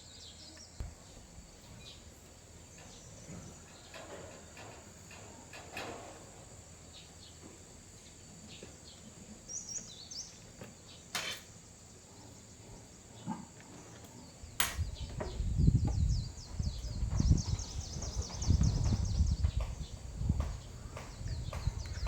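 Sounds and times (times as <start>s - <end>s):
low rumbling bumps: 14.4s - 22.0s.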